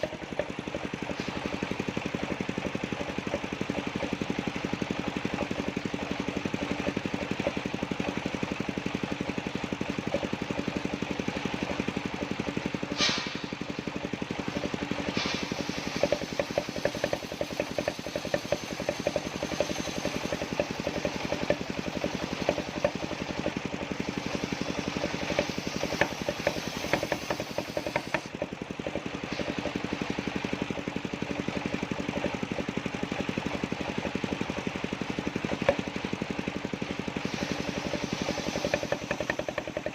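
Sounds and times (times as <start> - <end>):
saw cutting wood with knocks: 0.0 - 36.2, 37.1 - 39.9
sawmill engine pulsing: 0.0 - 39.9.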